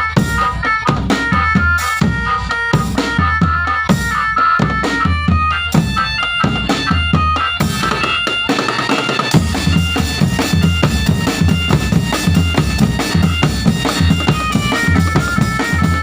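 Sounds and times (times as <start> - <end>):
bass drum and snare beat: 0.0 - 16.0
reedy wind melody: 0.0 - 16.0.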